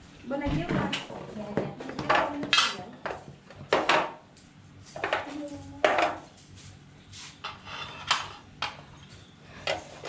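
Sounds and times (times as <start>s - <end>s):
dishes and cutlery clattering: 7.5s - 10.0s.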